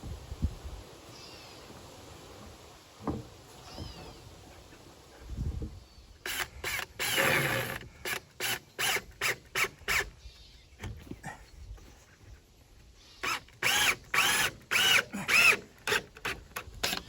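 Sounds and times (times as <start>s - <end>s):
cordless drill driving screws: 6.2s - 10.1s, 13.2s - 17.0s.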